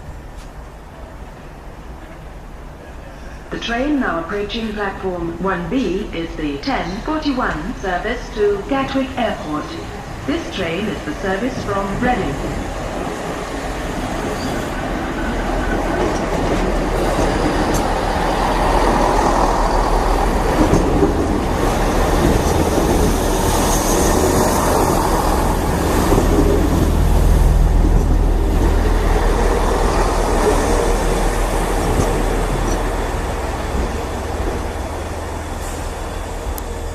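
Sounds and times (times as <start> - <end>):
train engine drone: 0.0 - 36.9
wheel and rail noise: 9.9 - 36.9.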